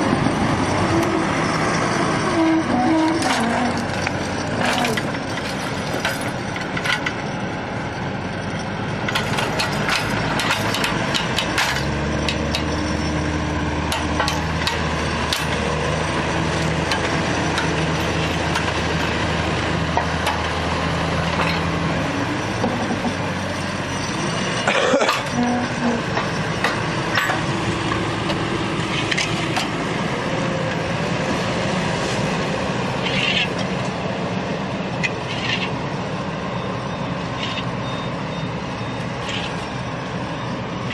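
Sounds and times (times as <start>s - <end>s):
heavy vehicle engine running: 0.0s - 40.9s
clanks and knocks: 2.8s - 7.3s, 9.1s - 13.0s, 13.9s - 15.6s, 21.2s - 21.7s, 22.6s - 23.2s, 24.6s - 28.4s.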